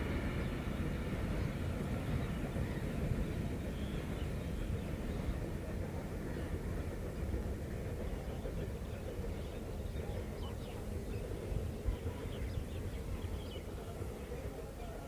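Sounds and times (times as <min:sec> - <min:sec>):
freight train rumbling: 0:00.0 - 0:15.0.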